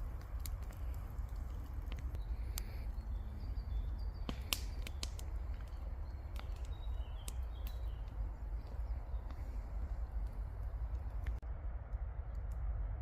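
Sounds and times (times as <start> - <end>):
campfire crackling and popping: 0.0 - 12.7
steady low rumble: 0.0 - 13.0
faint bird chirps: 2.1 - 11.2.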